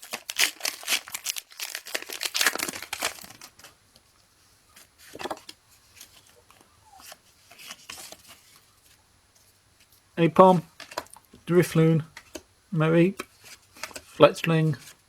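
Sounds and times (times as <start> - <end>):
foil wrapper crinkling and tearing: 0.0 - 3.8
cards being handled: 4.8 - 8.7, 13.2 - 15.0.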